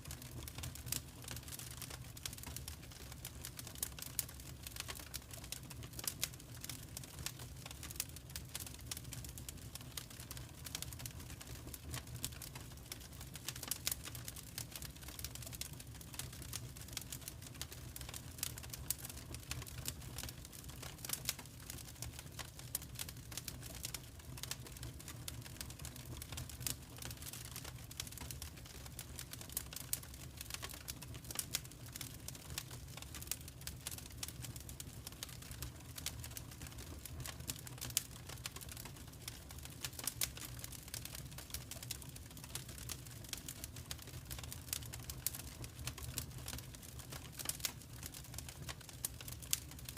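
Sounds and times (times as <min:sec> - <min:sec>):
log fire crackling: 0:00.0 - 0:49.9.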